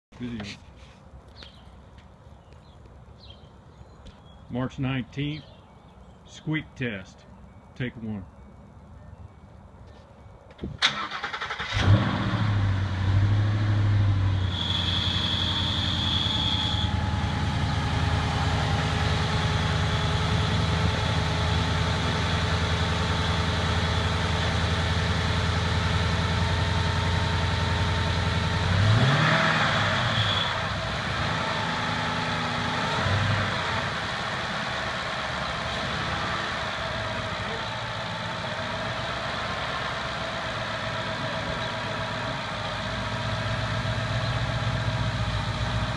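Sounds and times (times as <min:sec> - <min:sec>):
car engine starting and idling: 0:10.6 - 0:45.9
engine revving: 0:10.8 - 0:45.9
steady high-pitched tone: 0:14.4 - 0:19.1.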